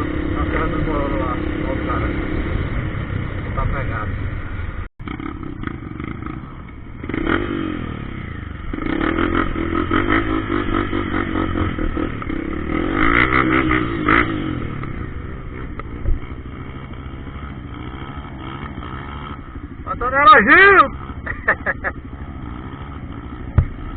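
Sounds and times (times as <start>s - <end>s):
motorcycle engines revving: 0.0s - 23.9s.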